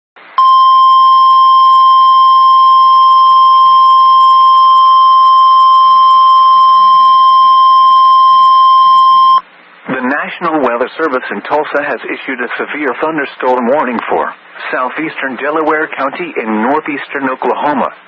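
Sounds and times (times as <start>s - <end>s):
steady alarm tone: 0.4s - 9.4s.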